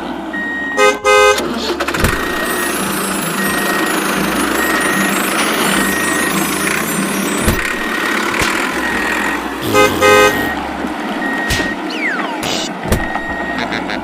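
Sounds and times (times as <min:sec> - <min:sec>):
toy engine rumble: 0:01.6 - 0:10.6
toy reversing beep: 0:02.2 - 0:10.6, 0:11.2 - 0:13.9
toy horn honk: 0:09.6 - 0:10.6.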